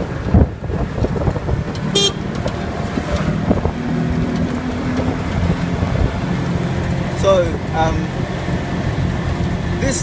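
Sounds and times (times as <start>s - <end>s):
auto-rickshaw engine: 0.0s - 10.0s
road noise: 0.0s - 10.0s
short high horn toot: 1.9s - 2.2s.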